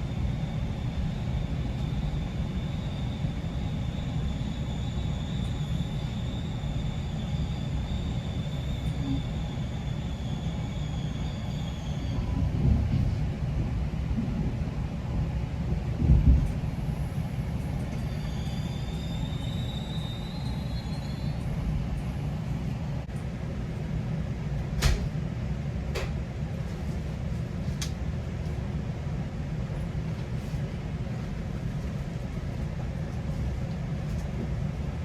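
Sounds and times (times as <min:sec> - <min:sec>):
faint high squeal: 0:00.0 - 0:12.5, 0:16.8 - 0:22.7
train wheels rumbling on rails: 0:00.0 - 0:35.0.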